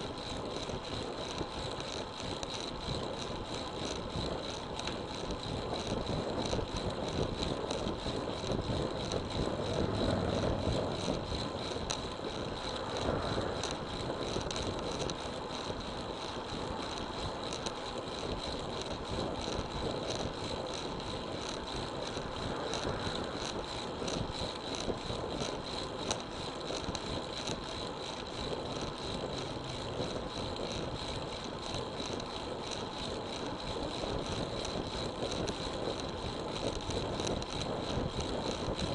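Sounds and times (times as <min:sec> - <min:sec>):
bicycle tyre noise: 0:00.0 - 0:38.9
wind rushing over microphone: 0:05.6 - 0:15.0.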